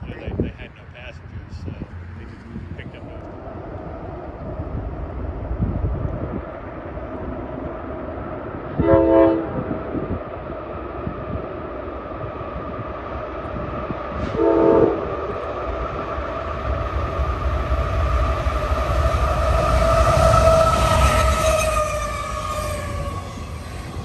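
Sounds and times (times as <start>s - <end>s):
train rumbling: 0.0s - 24.0s
train horn blasts: 8.8s - 9.6s, 14.2s - 15.3s.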